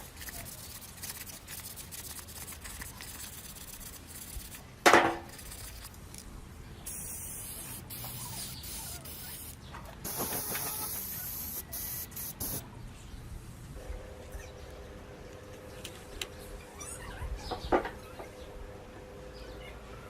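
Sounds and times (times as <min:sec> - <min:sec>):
spray blast: 0:00.0 - 0:04.6, 0:06.9 - 0:12.6
high hiss of spraying: 0:06.9 - 0:12.6.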